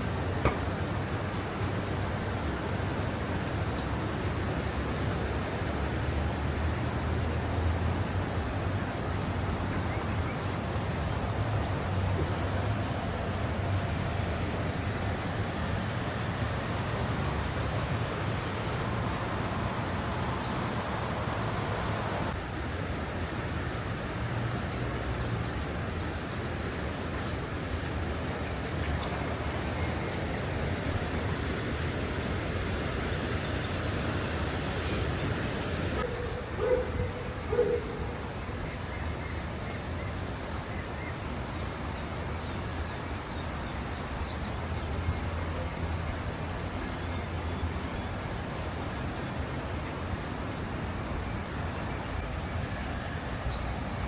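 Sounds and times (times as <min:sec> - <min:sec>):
rain hissing on wet street: 0:00.0 - 0:36.6.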